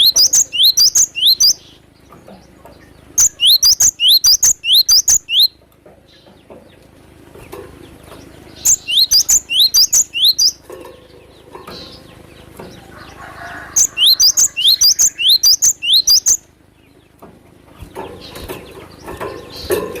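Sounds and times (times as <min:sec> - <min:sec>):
bird calling high rising notes: 0:00.0 - 0:01.8, 0:03.2 - 0:05.6, 0:08.6 - 0:10.6, 0:12.9 - 0:16.5.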